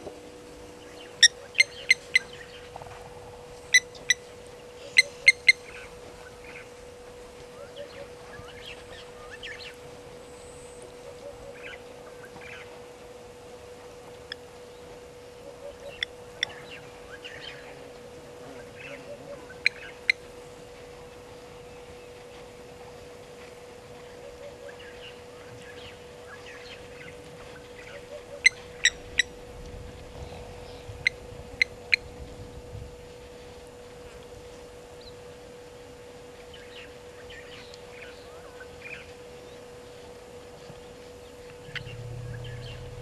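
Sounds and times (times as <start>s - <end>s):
steady hum: 0.0s - 43.0s
birds chirping: 0.6s - 6.8s, 15.5s - 20.5s, 40.7s - 43.0s.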